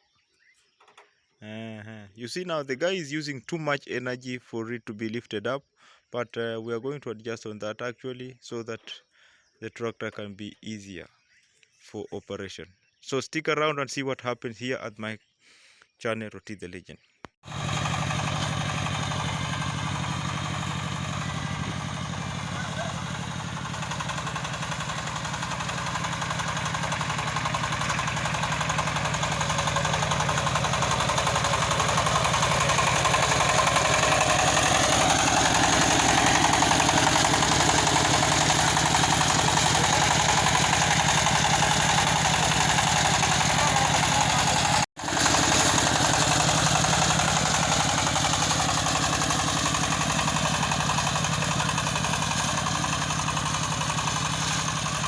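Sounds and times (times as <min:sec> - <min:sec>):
tractor engine running: 0:17.4 - 0:55.0.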